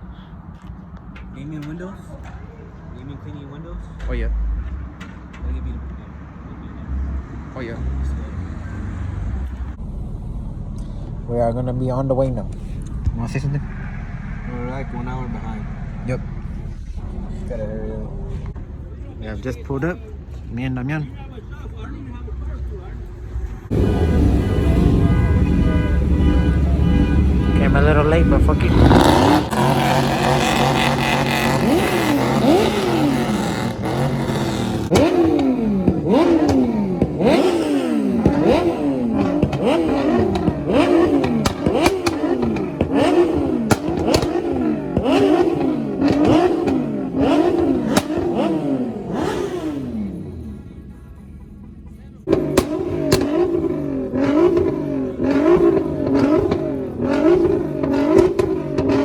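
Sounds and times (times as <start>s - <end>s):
car engine revving: 1.0s - 59.0s
sharp pops and clicks: 34.4s - 37.4s, 39.2s - 46.8s.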